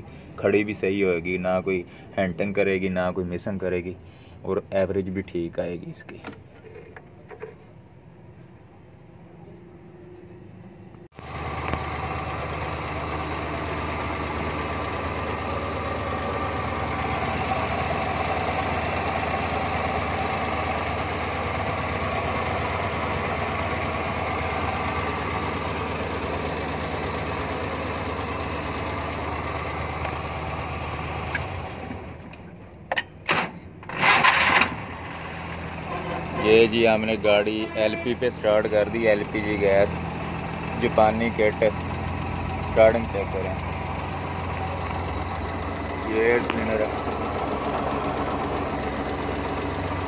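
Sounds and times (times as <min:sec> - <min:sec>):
car engine idling: 0:06.2 - 0:50.0.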